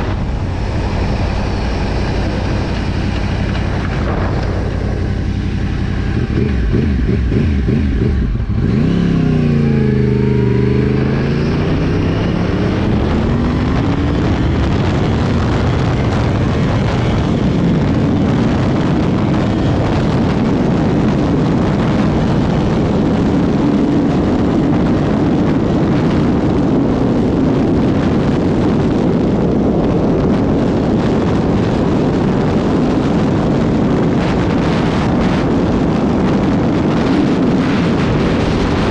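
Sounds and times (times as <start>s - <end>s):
wind on microphone: 0.0s - 38.9s
moped engine running: 0.4s - 23.4s.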